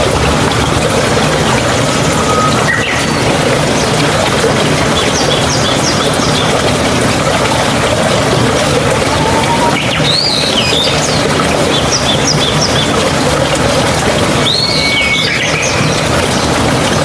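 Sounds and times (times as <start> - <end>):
stream water running: 0.0 - 17.0
bird calling: 8.9 - 11.2.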